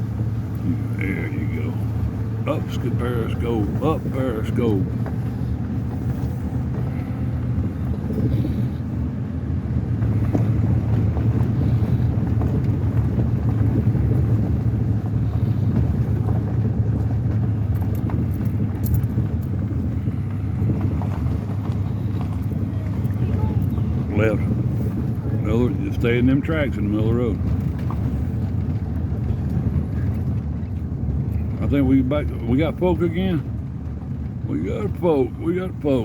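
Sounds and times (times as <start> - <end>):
truck engine and tyre rumble: 0.0 - 36.0.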